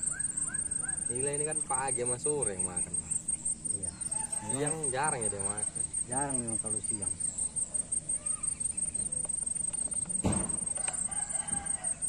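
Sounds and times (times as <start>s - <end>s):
high-pitched insect call: 0.0s - 12.0s
faint clicks: 8.7s - 11.1s
short thump: 10.1s - 10.7s.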